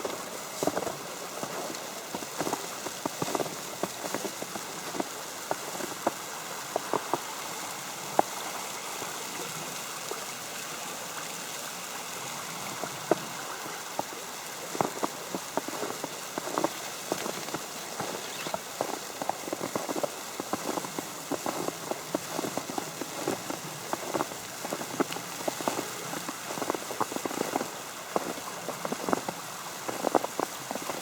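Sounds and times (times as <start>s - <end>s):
snow ticking on an umbrella: 0.0s - 8.4s, 13.1s - 31.0s
steady hiss: 0.0s - 31.0s.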